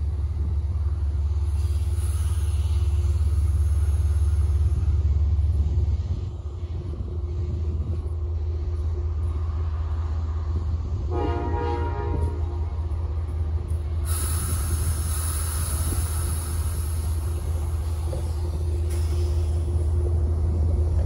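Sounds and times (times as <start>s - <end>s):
train low rumble: 0.0s - 21.0s
train horn blast: 11.1s - 12.7s
steady hiss: 14.0s - 20.6s.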